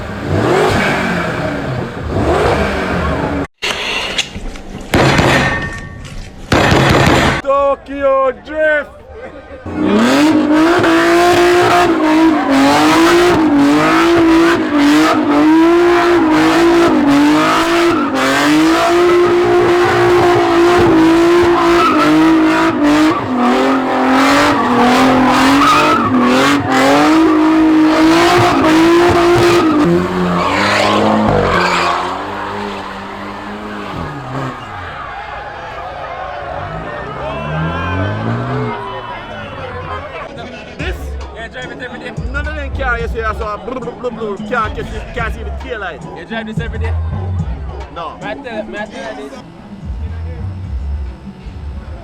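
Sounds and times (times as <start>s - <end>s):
car engine revving: 0.0s - 3.5s, 6.5s - 7.4s, 9.6s - 52.0s
tyres squealing: 9.7s - 42.1s.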